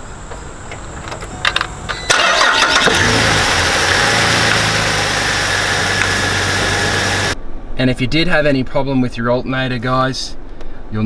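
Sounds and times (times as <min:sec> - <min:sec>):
car engine starting and running: 0:02.0 - 0:07.4.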